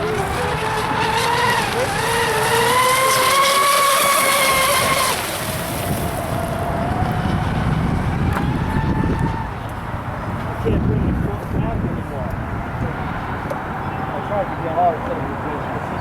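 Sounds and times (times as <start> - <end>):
electric motors whining: 0.0 - 10.2.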